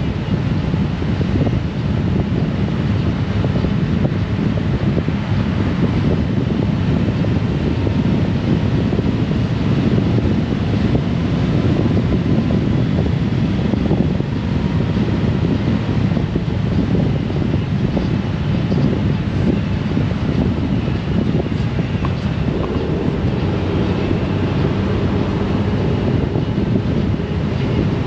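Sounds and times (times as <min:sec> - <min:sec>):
motorcycle engine and road noise: 0:00.0 - 0:28.0
wind buffeting microphone: 0:00.0 - 0:28.0
tyres on road: 0:17.0 - 0:28.0.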